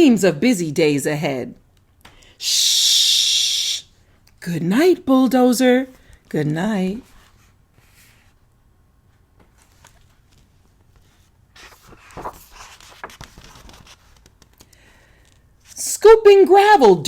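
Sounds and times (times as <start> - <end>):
paper page rustling: 9.4 - 15.8.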